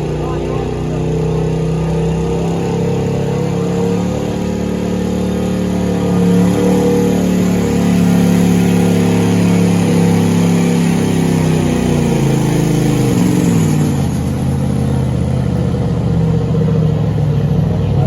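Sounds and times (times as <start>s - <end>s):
announcer speaking: 0.0s - 1.5s
diesel truck engine at high revs: 0.0s - 18.0s.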